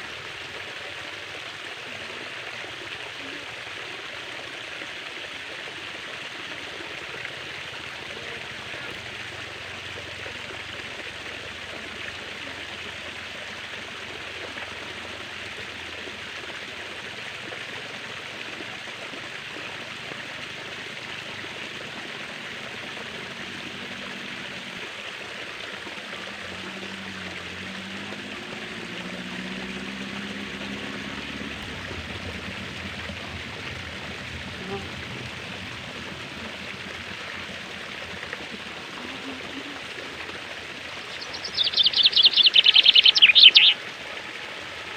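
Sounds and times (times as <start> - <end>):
stream water flowing: 0.0 - 44.9.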